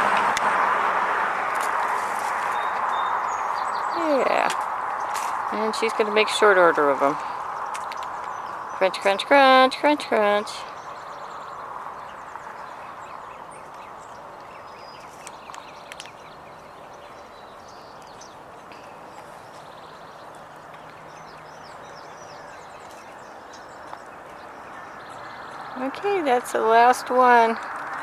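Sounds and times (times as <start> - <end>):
distant hum: 0.0 - 10.8.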